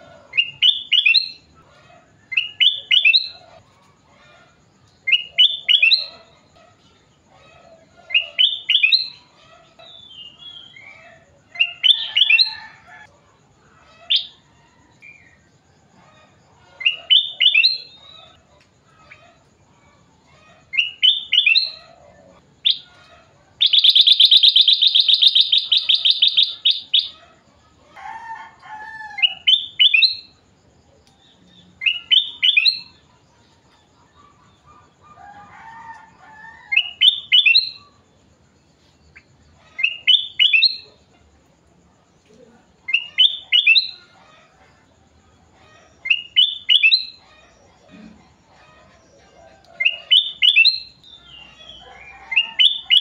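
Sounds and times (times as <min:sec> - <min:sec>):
bulbul singing: 0:23.6 - 0:27.2, 0:42.9 - 0:44.0, 0:46.1 - 0:47.2, 0:49.8 - 0:53.0
rapid bird trill: 0:23.6 - 0:27.2.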